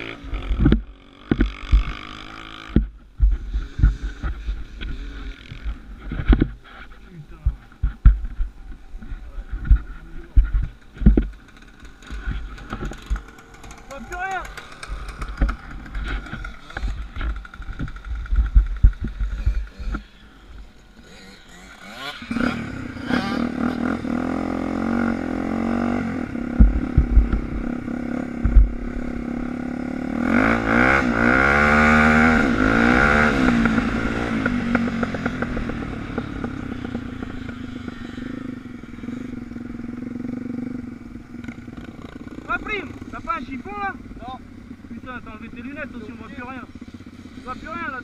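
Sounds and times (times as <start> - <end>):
dirt bike engine revving: 0.0 - 48.0
low thumps and clatter: 0.3 - 20.7, 25.0 - 29.6, 31.7 - 37.6.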